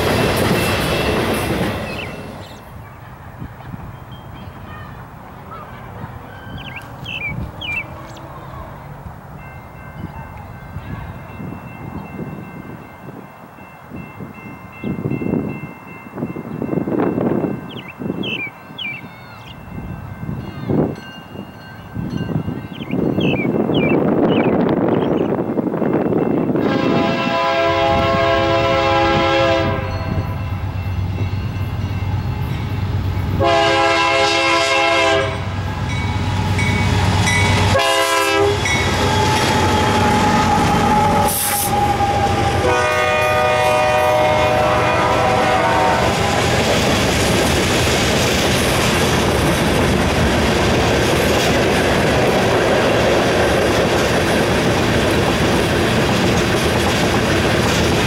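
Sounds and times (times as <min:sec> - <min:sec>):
train rumble: 0:00.0 - 0:58.0
locomotive air horn blasts: 0:26.6 - 0:30.2, 0:33.4 - 0:35.6, 0:37.6 - 0:46.5.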